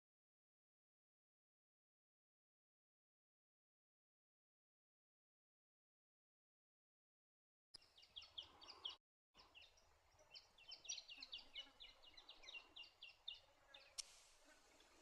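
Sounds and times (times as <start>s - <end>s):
songbird chirping: 7.8s - 15.0s
faint steady hiss: 13.4s - 15.0s.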